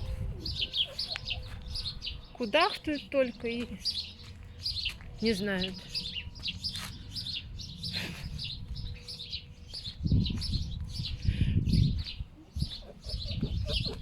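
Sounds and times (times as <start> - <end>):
foxes grunting and clucking: 12.4 - 14.0.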